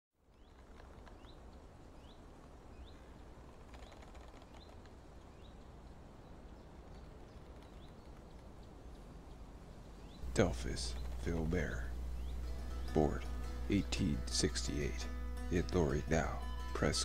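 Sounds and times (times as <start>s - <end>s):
faint clicks: 0.3s - 1.6s, 2.8s - 6.0s, 6.9s - 9.4s
bird rising chirp: 3.7s - 17.0s
low steady rumble: 8.7s - 17.0s.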